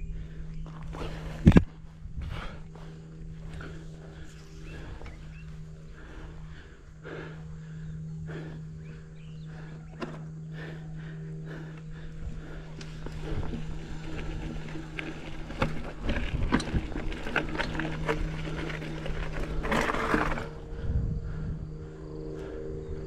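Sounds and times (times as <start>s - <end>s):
steady low hum: 0.0s - 23.0s
bike clattering over rocks: 12.8s - 20.6s.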